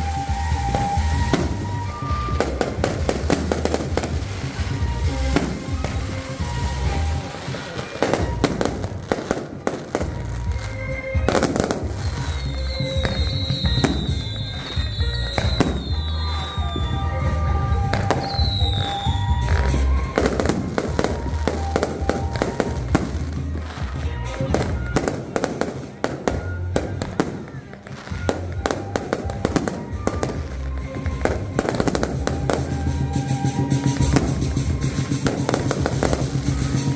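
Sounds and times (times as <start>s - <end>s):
falling firework whistles: 0.0s - 10.2s, 11.2s - 23.7s, 24.5s - 36.9s
fireworks bangs and crackling: 0.0s - 36.9s.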